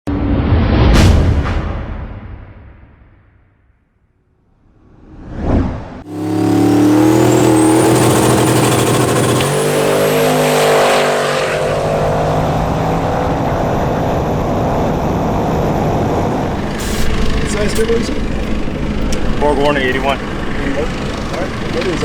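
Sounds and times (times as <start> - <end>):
car engine accelerating hard: 6.0 - 22.0
high turbo whine: 6.0 - 22.0.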